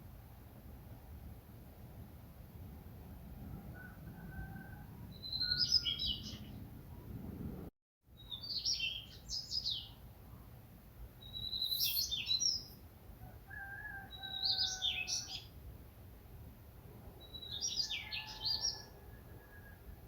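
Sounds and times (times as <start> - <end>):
songbird singing chirps: 3.7 - 6.7, 8.1 - 15.6, 17.0 - 20.0.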